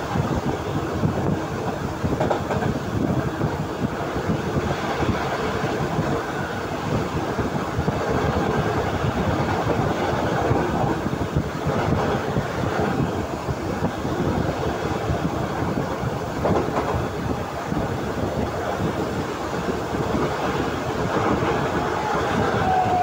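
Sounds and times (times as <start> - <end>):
train wheels rumbling on track: 0.0 - 23.0.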